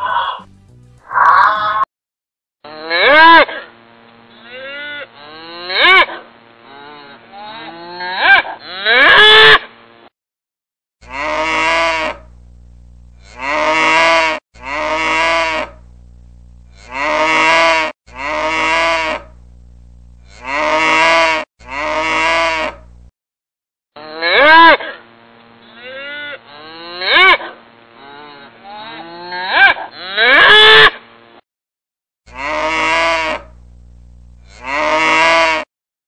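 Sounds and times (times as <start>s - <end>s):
calf mooing: 0.0s - 0.4s, 2.7s - 3.7s, 4.3s - 9.6s, 11.0s - 12.3s, 13.2s - 15.8s, 16.7s - 19.3s, 20.2s - 22.8s, 24.0s - 25.0s, 25.6s - 30.9s, 32.3s - 33.5s, 34.4s - 35.7s.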